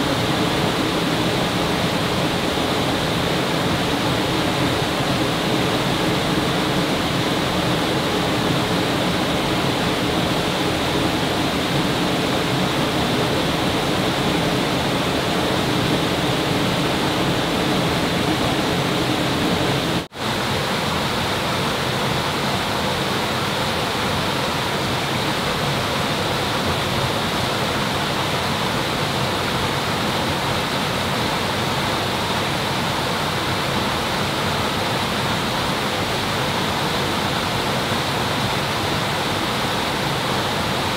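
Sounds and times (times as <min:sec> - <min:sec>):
rushing water: 0:00.0 - 0:40.9.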